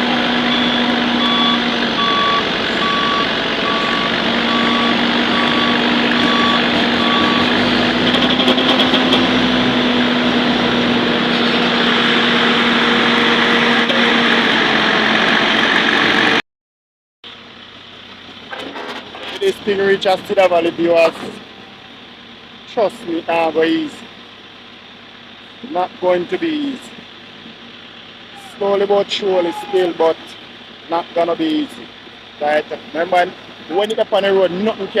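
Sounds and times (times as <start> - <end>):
heavy engines running: 0.0 - 16.4, 17.3 - 35.0
backup alarm beeping: 0.4 - 7.5.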